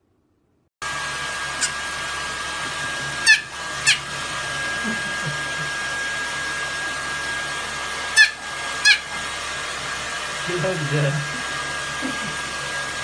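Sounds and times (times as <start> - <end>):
hair dryer running: 0.8 - 13.0
puppy yipping: 3.2 - 4.1, 8.1 - 9.3.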